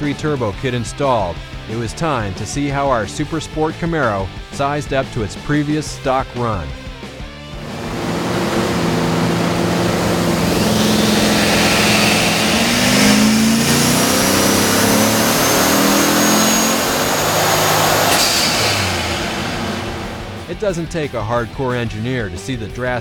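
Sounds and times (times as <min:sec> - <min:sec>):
car engine revving at full throttle: 0:07.5 - 0:20.6
high turbo whistle: 0:07.6 - 0:20.5.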